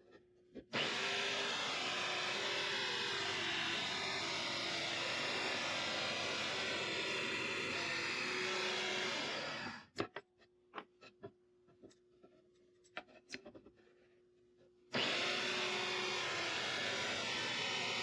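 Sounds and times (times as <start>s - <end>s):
power tool cutting steel rod: 0.8s - 9.9s, 15.0s - 18.0s.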